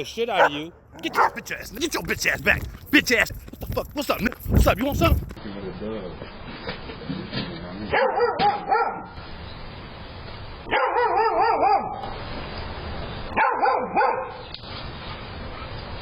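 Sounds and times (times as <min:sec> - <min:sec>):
dog barking: 0:00.3 - 0:01.5, 0:07.9 - 0:09.2, 0:10.7 - 0:12.0, 0:13.4 - 0:14.4.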